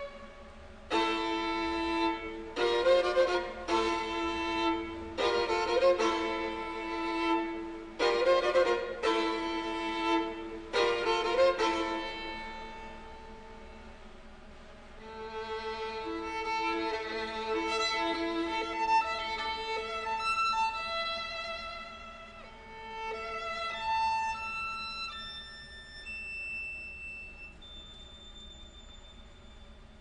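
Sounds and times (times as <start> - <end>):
violin: 0.0 - 14.1, 15.0 - 26.5
orchestral classical music: 0.9 - 12.9.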